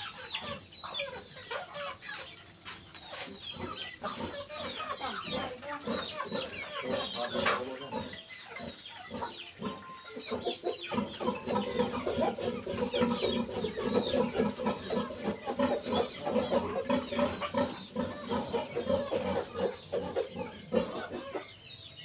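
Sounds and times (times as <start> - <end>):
chickens clucking: 0.0 - 22.0
chicks peeping: 0.0 - 22.0.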